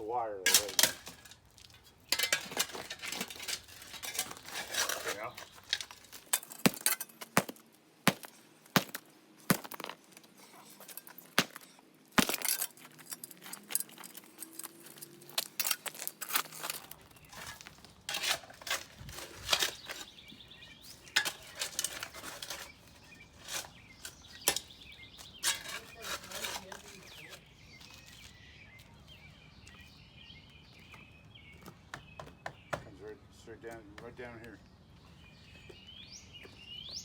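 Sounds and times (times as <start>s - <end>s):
steel tools clinking: 0.5s - 7.3s, 12.3s - 20.2s, 20.8s - 27.4s
concrete chunks knocking: 0.5s - 10.2s, 10.9s - 13.0s.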